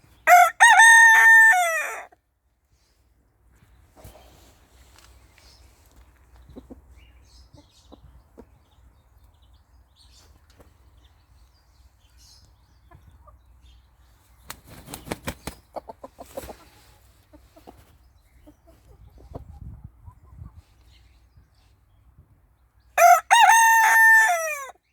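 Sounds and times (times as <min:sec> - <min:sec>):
rooster flapping wings: 0:14.5 - 0:15.6.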